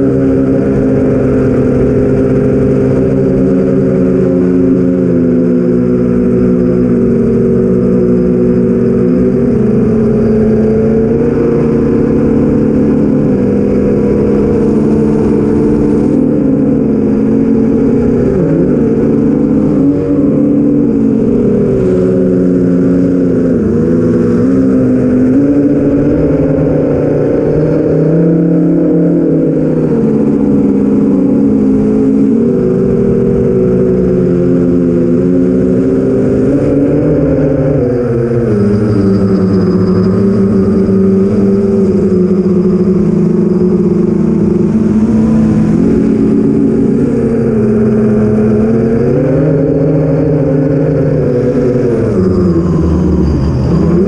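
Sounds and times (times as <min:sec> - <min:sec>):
drone motors buzzing: 0:00.0 - 0:54.0.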